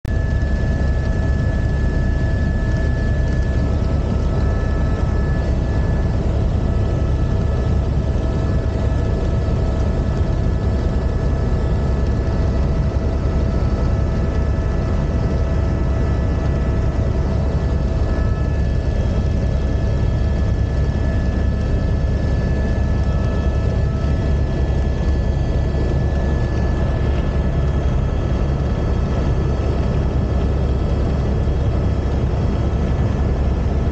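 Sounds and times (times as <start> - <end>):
high-pitched whines: 0.1 - 9.9
helicopter rumble: 0.1 - 33.9.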